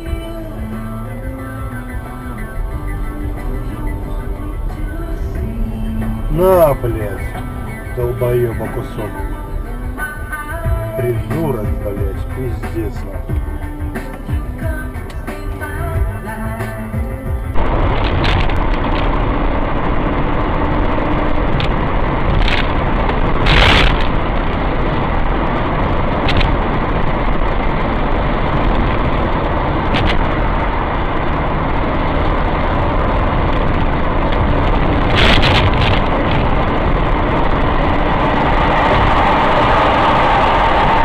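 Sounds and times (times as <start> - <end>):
vehicle engine and road noise: 0.0 - 41.0.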